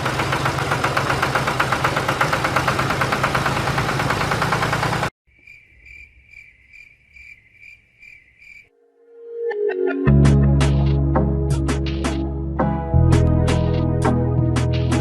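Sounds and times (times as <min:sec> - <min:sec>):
small engine running: 0:00.0 - 0:05.1
cricket chirping: 0:05.3 - 0:08.8.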